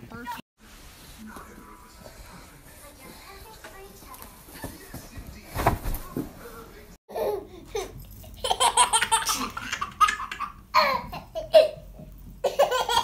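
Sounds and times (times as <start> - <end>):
baby laughing: 7.1 - 13.0.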